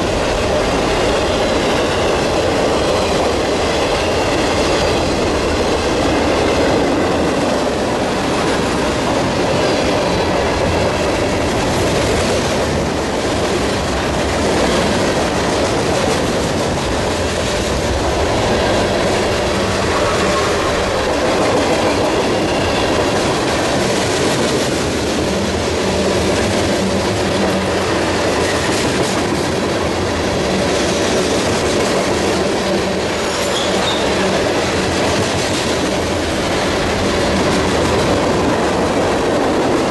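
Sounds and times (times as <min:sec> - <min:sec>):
steel wheels rumbling on rail: 0:00.0 - 0:39.9
faint high wheel squeal: 0:33.3 - 0:34.2.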